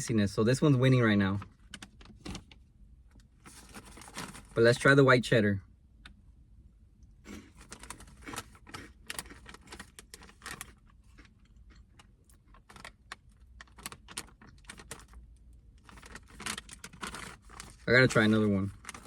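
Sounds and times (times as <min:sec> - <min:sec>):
crisp puffs crackling and crunching: 0:03.4 - 0:04.6, 0:07.3 - 0:19.0.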